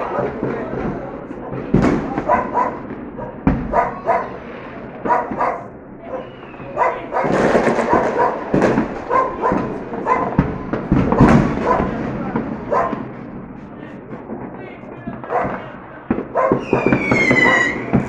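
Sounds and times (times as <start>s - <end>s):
dog barking: 0.0s - 0.4s, 1.3s - 4.4s, 5.0s - 10.4s, 11.1s - 12.0s, 12.7s - 13.1s, 15.2s - 15.6s, 16.3s - 16.6s
fireworks banging and crackling: 0.0s - 18.0s.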